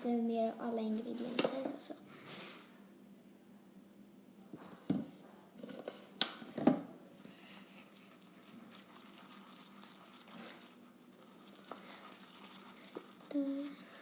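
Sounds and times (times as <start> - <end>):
faint handling sounds: 4.6 - 14.0
wet slime squelches: 7.2 - 14.0.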